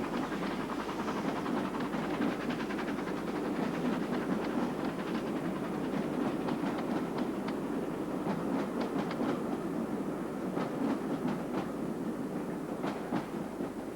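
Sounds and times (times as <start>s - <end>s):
steam hiss: 0.0s - 3.3s
steam train rumble: 0.0s - 13.9s.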